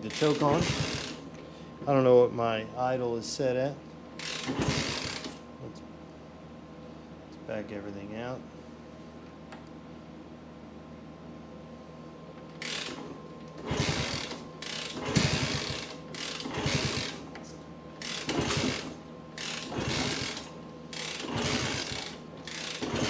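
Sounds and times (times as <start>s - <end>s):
ratchet wrench clicking: 0.0s - 1.3s, 18.0s - 23.0s.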